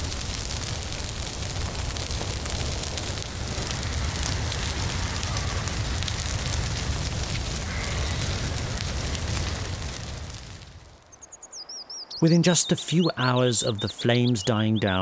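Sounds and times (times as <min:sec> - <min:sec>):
burning wood crackling and popping: 0:00.0 - 0:11.2
low rumble of flames: 0:00.0 - 0:11.3.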